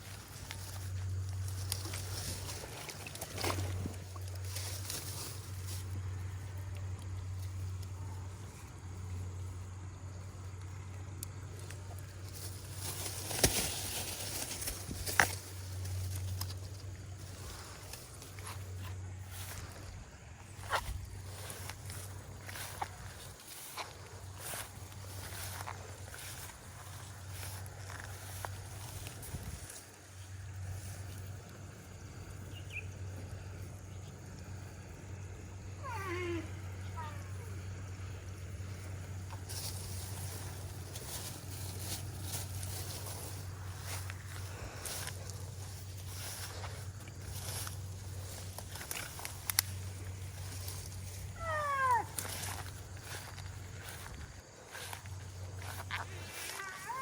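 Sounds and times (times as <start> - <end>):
steady low hum: 0.0 - 57.0
faint chirp: 32.5 - 33.0
animal call with falling notes: 35.8 - 37.4, 51.4 - 52.1.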